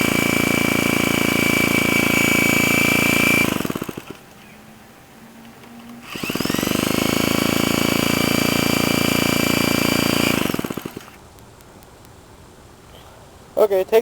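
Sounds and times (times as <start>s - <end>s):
small engine running and sputtering: 6.0s - 11.2s.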